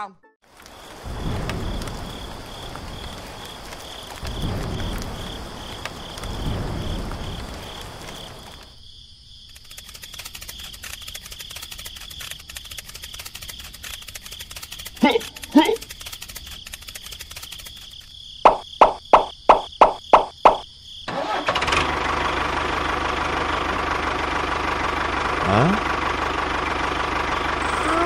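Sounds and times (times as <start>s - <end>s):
insects trilling: 0.5s - 21.1s
low rumbles: 0.6s - 8.7s
rapid dense ticking: 9.5s - 18.0s.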